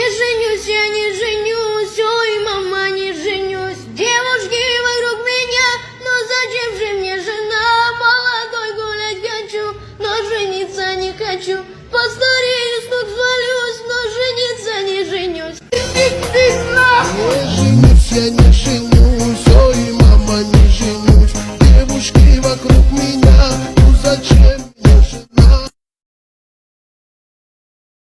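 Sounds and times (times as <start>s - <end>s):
high-pitched voice singing: 12.0s - 25.8s.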